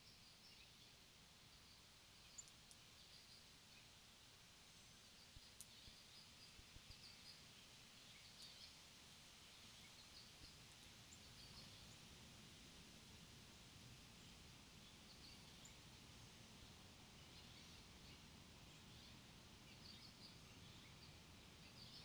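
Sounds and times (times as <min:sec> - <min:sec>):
small clicks: 0:02.4 - 0:02.8.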